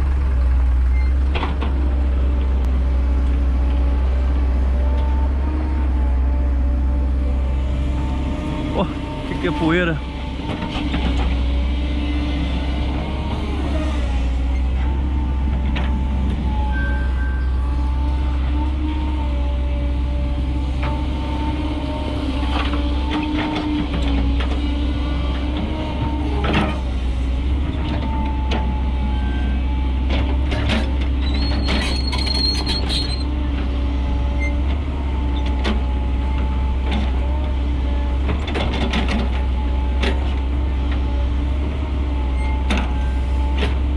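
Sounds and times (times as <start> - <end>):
truck diesel engine running: 0.0 - 32.2.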